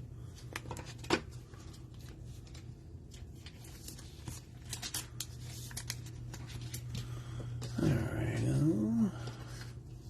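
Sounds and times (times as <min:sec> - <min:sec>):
steady low hum: 0:00.0 - 0:10.0
cards clicking and rustling: 0:00.3 - 0:07.9.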